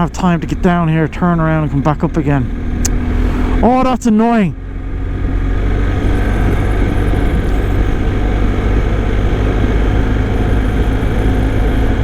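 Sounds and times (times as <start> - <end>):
motorcycle engine cruising: 0.0 - 12.0
wind and road noise: 0.0 - 12.0.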